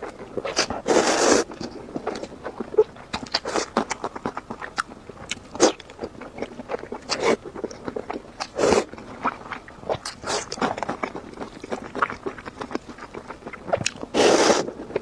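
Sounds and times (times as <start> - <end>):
person biting and chewing food: 0.0 - 15.0.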